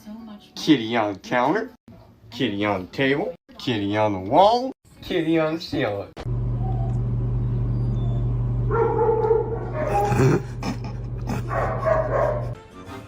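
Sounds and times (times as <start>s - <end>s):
steady low hum: 6.3s - 12.6s
dog whining: 6.6s - 10.4s.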